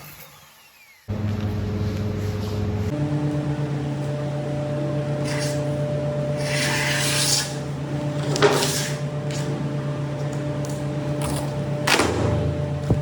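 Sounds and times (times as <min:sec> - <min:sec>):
machine hum: 0:01.1 - 0:13.0
tool scraping along wood: 0:05.2 - 0:09.6.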